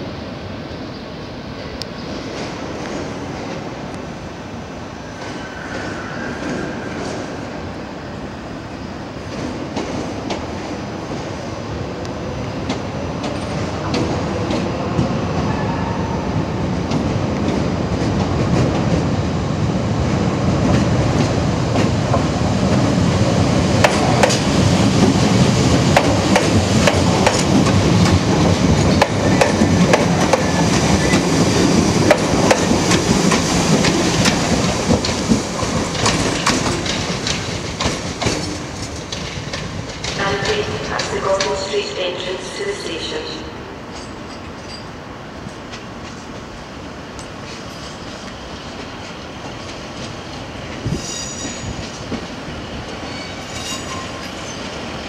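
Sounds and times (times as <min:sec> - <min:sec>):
train rumble: 0:01.3 - 0:55.0
train wheels clicking over rail joints: 0:23.8 - 0:41.6.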